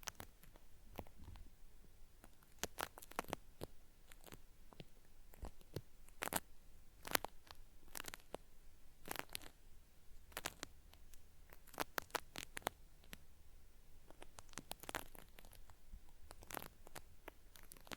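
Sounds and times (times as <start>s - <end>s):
cotton swab scratching microphone: 2.2s - 8.4s, 9.0s - 9.6s, 10.2s - 13.3s, 14.1s - 17.9s.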